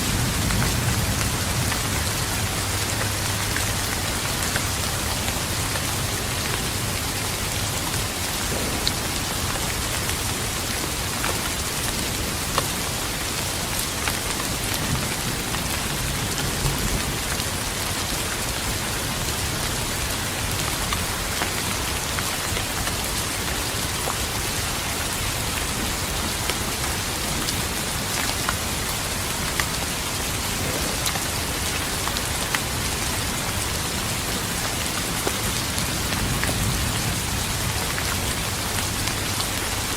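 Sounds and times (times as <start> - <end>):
sharp raindrop hits: 0.0 - 17.6
steady rain: 0.0 - 39.9.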